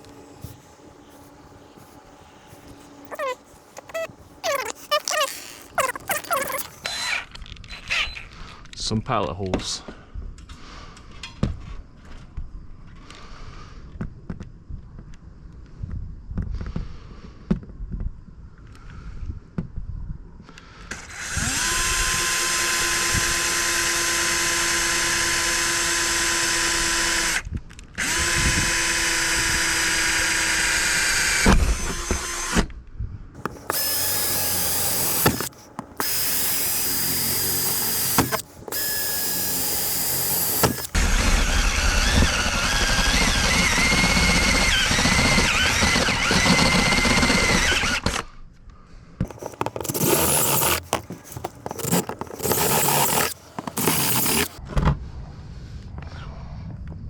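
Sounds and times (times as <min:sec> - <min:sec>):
power drill drilling metal: 0:00.0 - 0:07.3, 0:21.1 - 0:27.4, 0:28.0 - 0:32.6, 0:33.4 - 0:48.2, 0:49.3 - 0:54.6.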